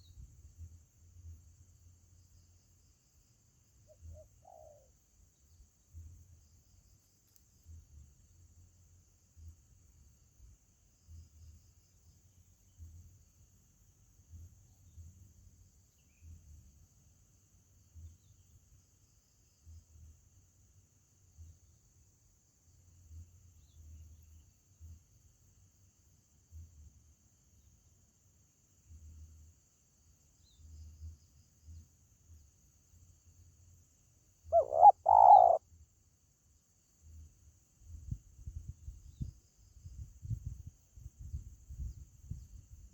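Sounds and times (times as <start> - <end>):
high insect drone: 0.0 - 42.9
dove cooing: 4.1 - 4.9, 34.5 - 35.6.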